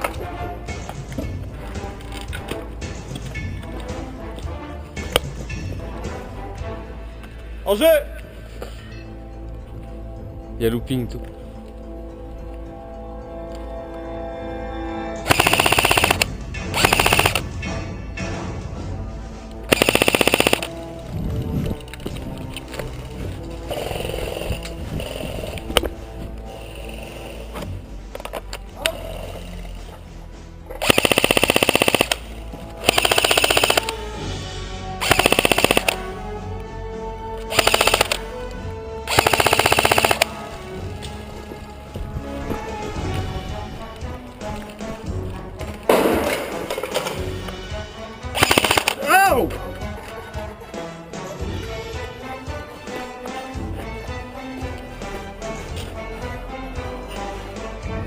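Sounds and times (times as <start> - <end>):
airsoft gun full-auto bursts: 15.3 - 17.4, 19.7 - 20.8, 30.8 - 34.0, 35.0 - 36.0, 37.5 - 38.3, 39.1 - 40.3, 48.4 - 49.1.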